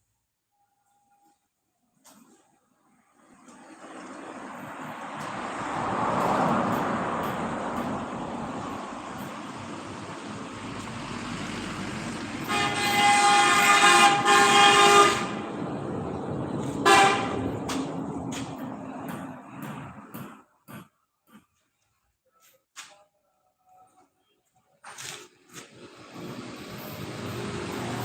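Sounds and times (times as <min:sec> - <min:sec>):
vehicle and road noise: 0:02.0 - 0:23.0, 0:23.7 - 0:28.0
vehicle horn honking: 0:12.4 - 0:15.5, 0:16.8 - 0:17.6.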